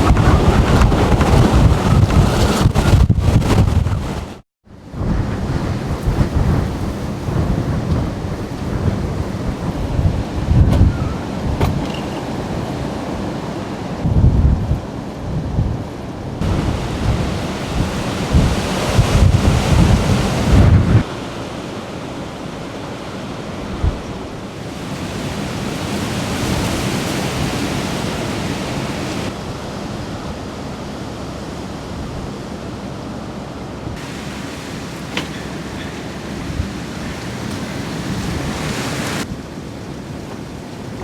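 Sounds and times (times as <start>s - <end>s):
wind buffeting microphone: 0.0s - 41.0s
rain: 16.4s - 29.6s, 33.9s - 41.0s.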